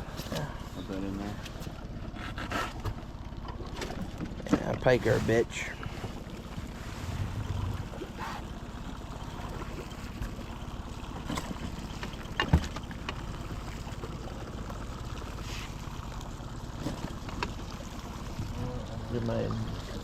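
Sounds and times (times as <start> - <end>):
wind rumbling on microphone: 6.6 - 8.5.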